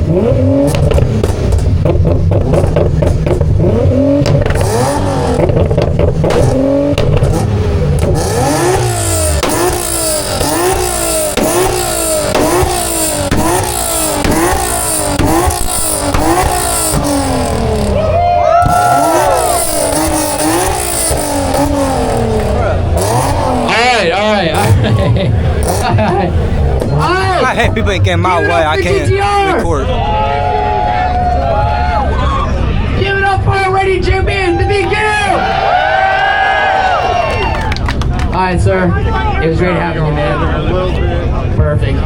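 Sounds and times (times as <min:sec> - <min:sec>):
car engine revving: 0:00.0 - 0:30.8
heavy low rumble: 0:00.0 - 0:35.3.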